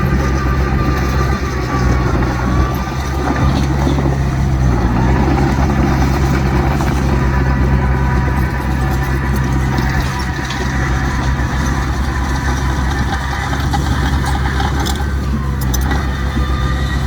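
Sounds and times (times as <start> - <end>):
heavy diesel engine under load: 0.0 - 17.0.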